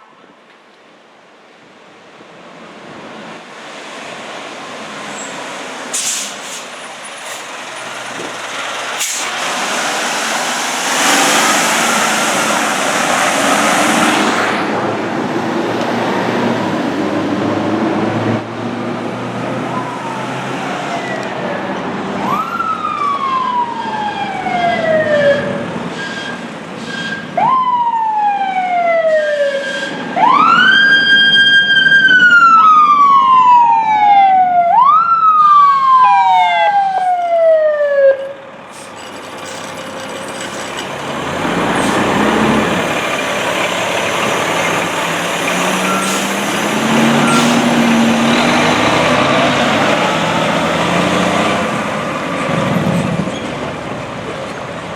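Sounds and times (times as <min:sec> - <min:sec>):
heavy truck engine and road noise: 0:00.0 - 0:54.9
fire truck siren wailing: 0:19.0 - 0:38.5, 0:41.2 - 0:52.9.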